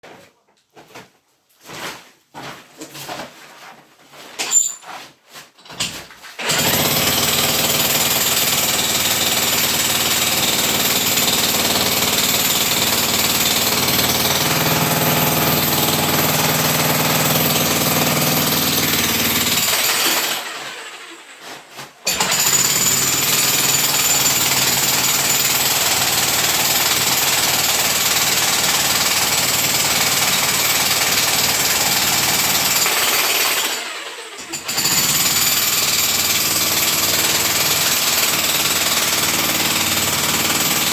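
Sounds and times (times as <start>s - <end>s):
electric demolition hammer: 6.4s - 21.0s, 22.1s - 40.9s.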